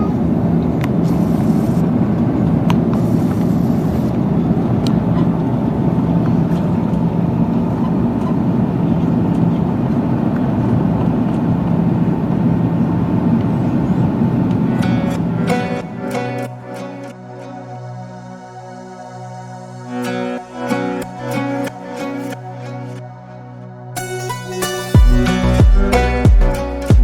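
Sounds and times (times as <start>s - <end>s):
jet engine cabin noise: 0.0s - 17.2s.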